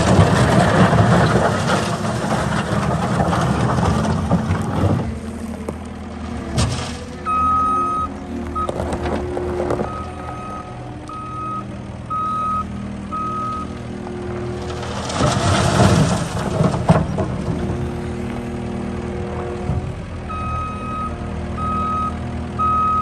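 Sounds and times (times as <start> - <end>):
diesel engine idling: 0.0 - 23.0
back-up alarm beeping: 7.2 - 8.8, 9.8 - 13.7, 20.3 - 23.0.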